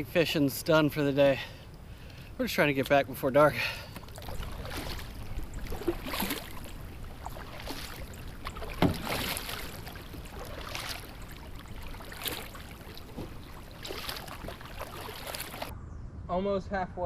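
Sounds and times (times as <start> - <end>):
paddle splashing in water: 2.6 - 15.7.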